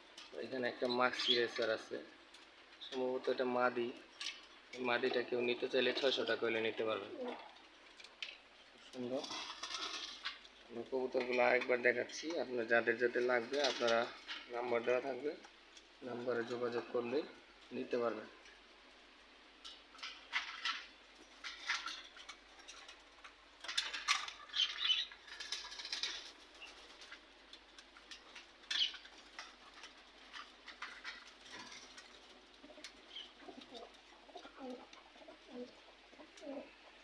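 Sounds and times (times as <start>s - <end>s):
pigeons cooing: 31.2s - 37.0s.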